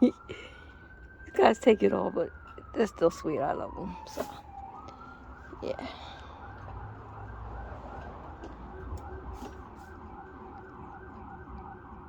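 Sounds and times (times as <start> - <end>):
emergency vehicle siren yelping: 0.0 - 12.0.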